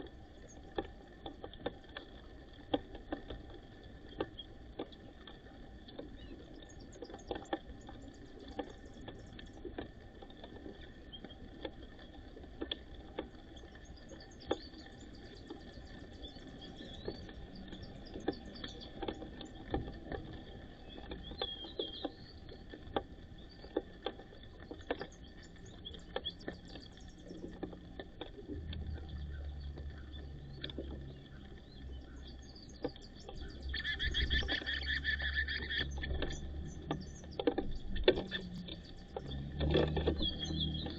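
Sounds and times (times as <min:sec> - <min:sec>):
small bird chirps: 0:20.8 - 0:22.6, 0:29.0 - 0:40.9
beaks pecking seed: 0:28.9 - 0:40.9.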